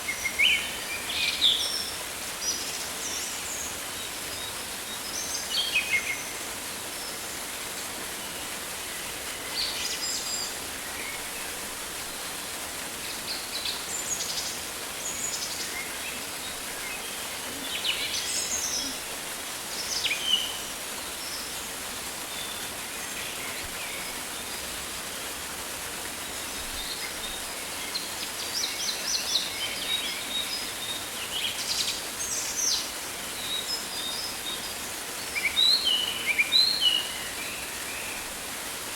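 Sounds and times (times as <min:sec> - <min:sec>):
rain hissing: 0:00.1 - 0:29.2.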